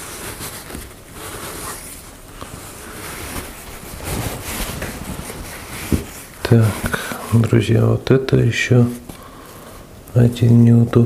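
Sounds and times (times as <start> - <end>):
rubbing and scraping grime: 0.0 - 7.2.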